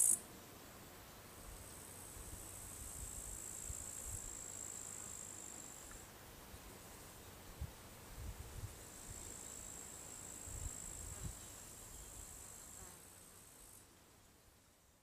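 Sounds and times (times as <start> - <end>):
crickets trilling: 0.0 - 0.2.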